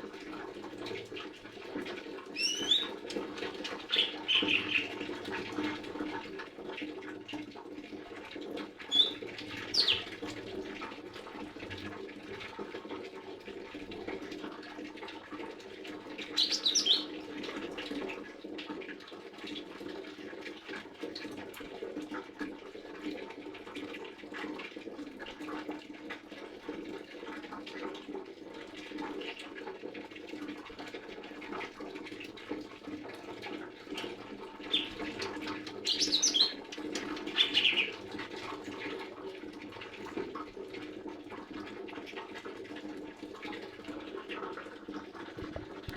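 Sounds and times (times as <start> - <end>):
bird sweeping chirps: 2.4 - 2.9, 9.8 - 10.0, 16.4 - 17.1, 35.9 - 36.6.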